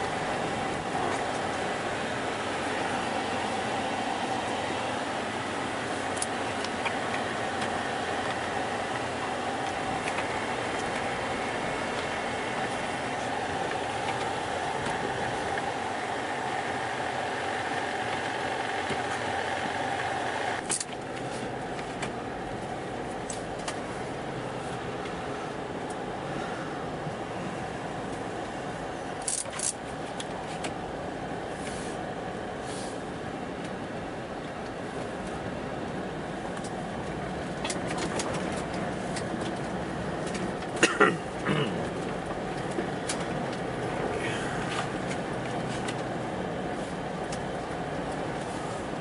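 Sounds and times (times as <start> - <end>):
car engine and road noise: 0.0 - 49.0
steady hum: 0.0 - 49.0.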